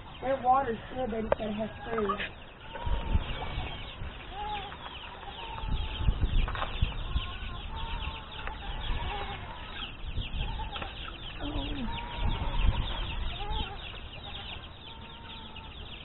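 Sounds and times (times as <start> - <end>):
chickens clucking: 0.0 - 16.0
low rumbling thumps: 0.0 - 16.0
poultry chirping: 0.0 - 16.0.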